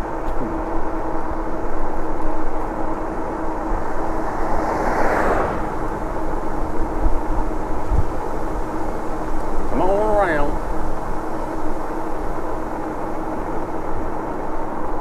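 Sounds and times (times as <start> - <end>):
road noise: 0.0 - 15.0
steady hum: 0.0 - 15.0
wind buffeting microphone: 0.0 - 15.0
motor vehicle passing: 0.5 - 9.7.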